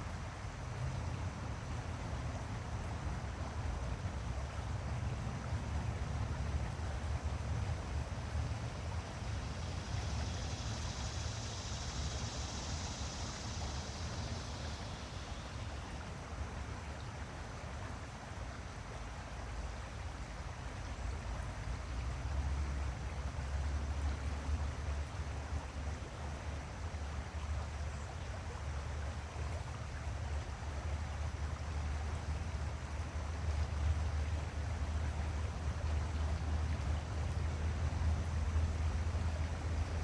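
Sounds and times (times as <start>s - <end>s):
stream water rushing: 0.0s - 40.0s
high hiss: 8.4s - 17.0s.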